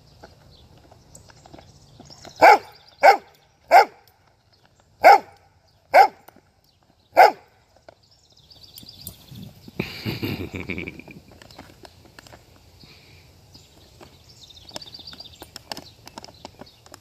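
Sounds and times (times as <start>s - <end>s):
dog barking: 2.4s - 4.0s, 5.0s - 6.2s, 7.2s - 7.5s.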